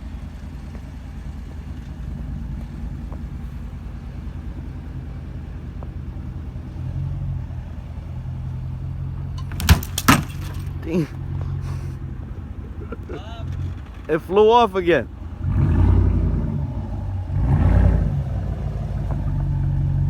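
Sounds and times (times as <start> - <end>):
car engine running: 0.0 - 20.0
sharp knocks: 9.4 - 10.8.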